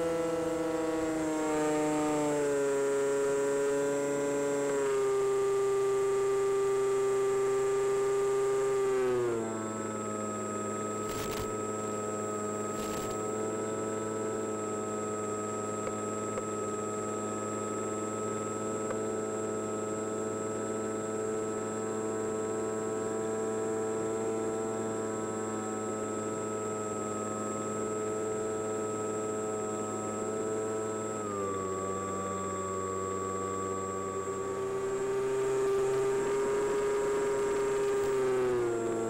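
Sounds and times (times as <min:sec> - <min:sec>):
electric motor and propeller whine: 0:00.0 - 0:39.0
brief crackles: 0:11.0 - 0:11.6, 0:12.7 - 0:13.2.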